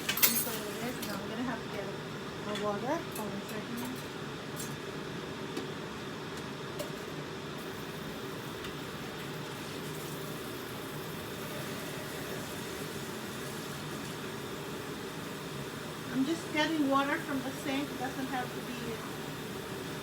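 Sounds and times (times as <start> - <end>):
food sizzling in oil: 6.9 - 20.0.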